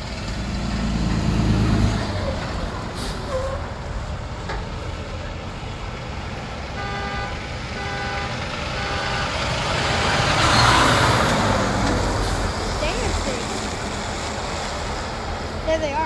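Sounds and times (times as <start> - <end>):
tow trucks driving past: 0.0 - 16.0.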